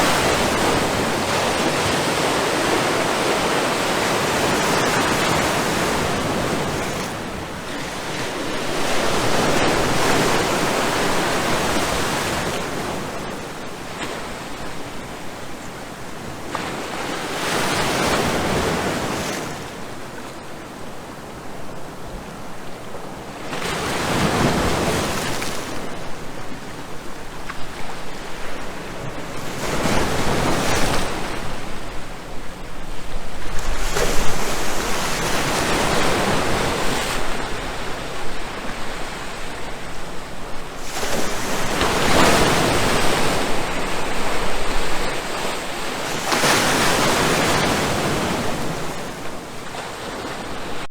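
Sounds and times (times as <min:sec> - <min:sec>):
waves breaking: 0:23.4 - 0:50.9.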